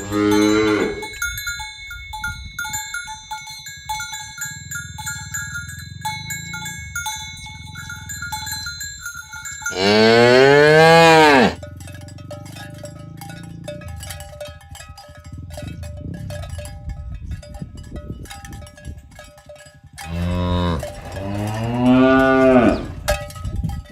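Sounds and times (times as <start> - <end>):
cow mooing: 0.0 - 1.2, 9.7 - 11.7, 20.1 - 23.1
cowbells clinking: 0.0 - 23.9.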